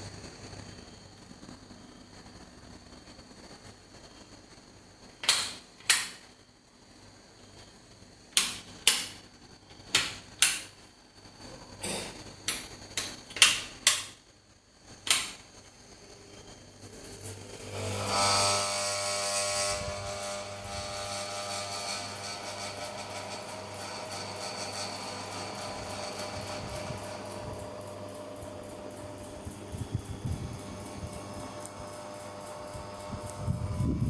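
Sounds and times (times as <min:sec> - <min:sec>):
ceiling fan motor humming: 0:00.0 - 0:34.0.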